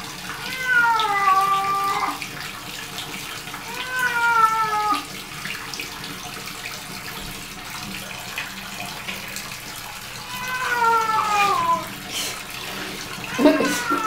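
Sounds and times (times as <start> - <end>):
tap water running into bathtub: 0.0 - 14.0
cat meowing: 0.4 - 2.2, 3.7 - 5.1, 10.2 - 12.0, 13.2 - 14.0.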